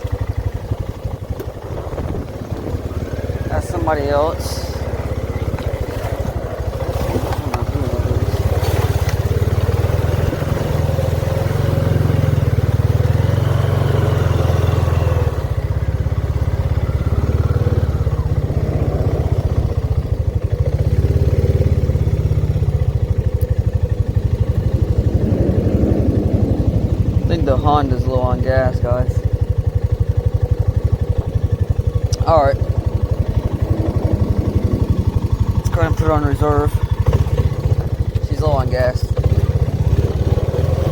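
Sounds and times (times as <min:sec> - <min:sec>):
atv engine running under load: 0:00.0 - 0:40.9.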